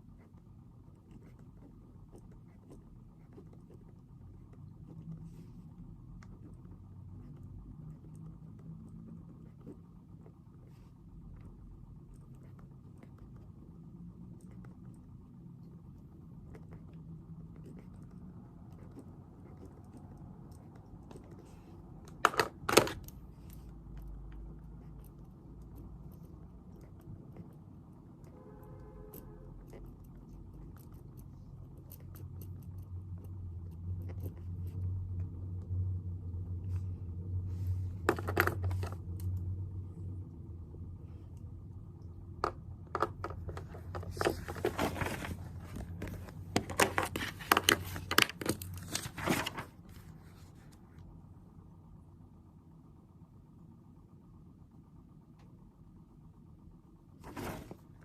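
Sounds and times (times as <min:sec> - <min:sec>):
paper rustling and crinkling: 0:43.6 - 0:50.7.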